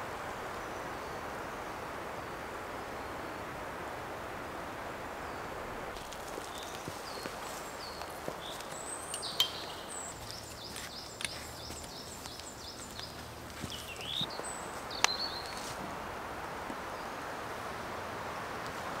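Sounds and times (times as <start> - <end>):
forest ambience hiss: 0.0 - 19.0
small birds chirping: 5.2 - 15.8.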